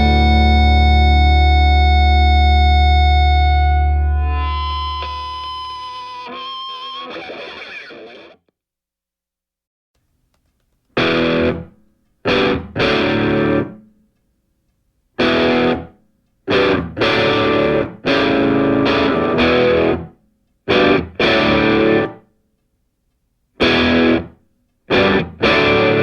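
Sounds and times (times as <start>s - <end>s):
distorted electric guitar chords: 0.0s - 8.4s, 11.0s - 11.7s, 12.3s - 13.8s, 15.2s - 15.9s, 16.5s - 20.1s, 20.7s - 22.2s, 23.6s - 24.3s, 24.9s - 26.0s.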